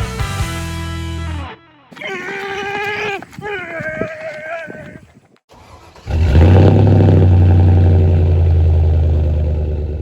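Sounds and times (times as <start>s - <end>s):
truck engine exhaust note: 6.1s - 10.0s.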